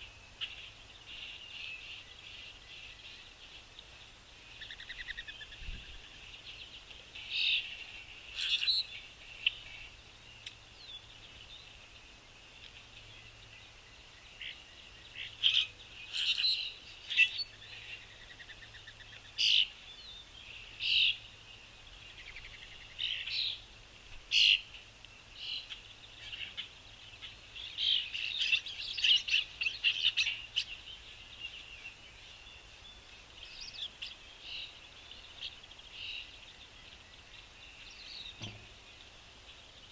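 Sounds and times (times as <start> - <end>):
distant birds twittering: 0.0 - 39.9
songbirds chirping: 0.0 - 39.9.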